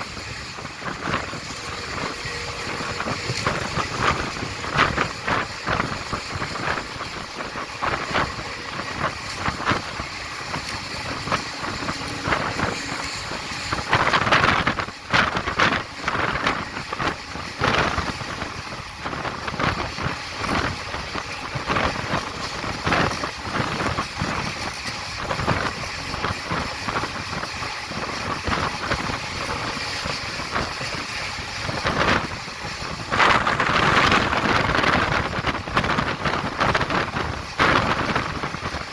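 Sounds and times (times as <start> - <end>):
train wheels clattering on track: 0.0 - 38.9
wind rushing: 0.0 - 38.9.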